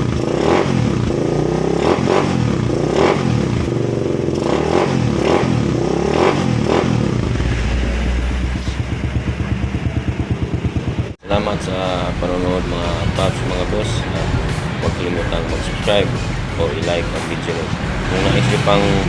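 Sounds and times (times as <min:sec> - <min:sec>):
motorcycle engine revving and idling: 0:00.0 - 0:19.0.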